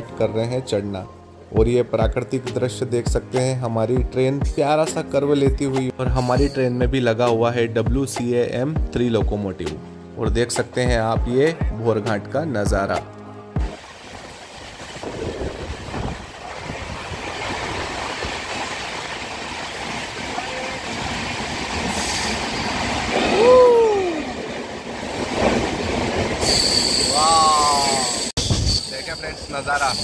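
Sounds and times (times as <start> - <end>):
train wheels squealing: 6.1 - 6.8, 21.9 - 22.9, 26.4 - 30.0
train wheels rumbling: 14.0 - 30.0.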